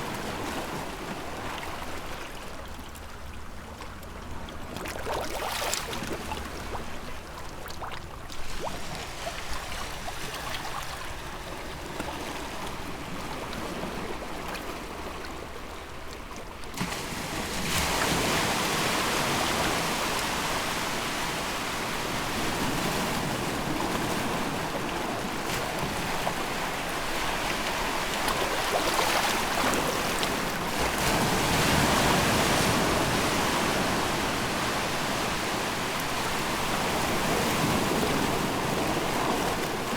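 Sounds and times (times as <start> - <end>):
water lapping at shore: 0.1 - 39.9
surf hiss: 17.0 - 23.8.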